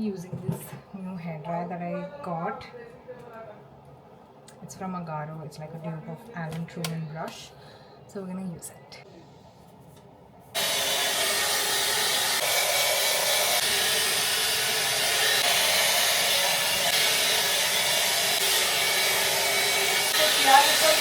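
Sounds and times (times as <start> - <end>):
hair dryer brush blowing: 10.6 - 21.0.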